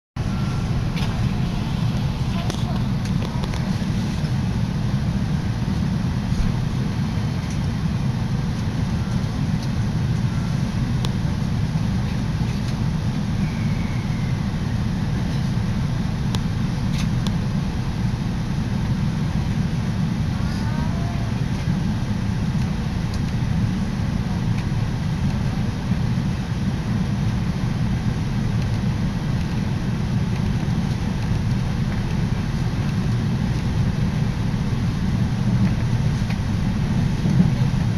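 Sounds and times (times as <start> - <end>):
electric train rumble inside carriage: 0.2 - 37.9
faint squeal: 13.4 - 14.6.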